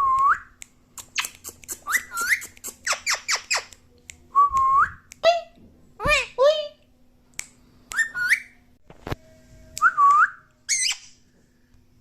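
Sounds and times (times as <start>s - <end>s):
parrot chirping: 1.0s - 3.8s, 7.9s - 8.6s, 10.7s - 11.2s
parrot whistling: 1.7s - 3.7s, 7.9s - 8.6s, 9.8s - 11.2s.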